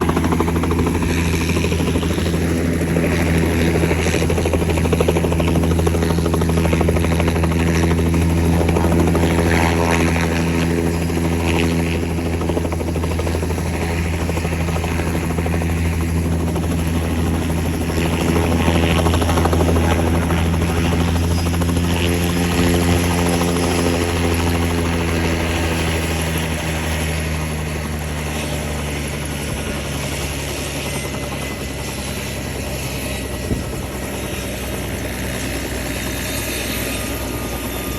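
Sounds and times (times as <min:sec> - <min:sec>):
helicopter rotor and turbine: 0:00.0 - 0:37.9.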